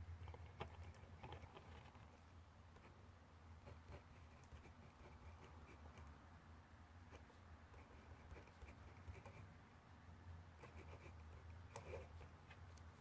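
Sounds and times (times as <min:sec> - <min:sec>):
pencil scratching on paper: 0:10.6 - 0:12.4.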